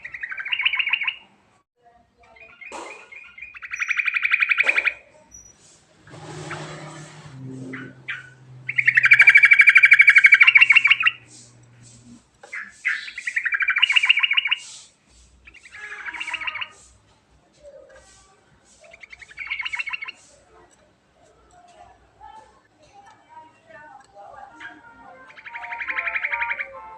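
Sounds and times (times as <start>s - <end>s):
bird singing trilled notes: 0.0s - 1.2s, 2.3s - 11.8s, 12.5s - 14.8s, 15.4s - 16.9s, 18.8s - 20.2s, 24.4s - 26.9s.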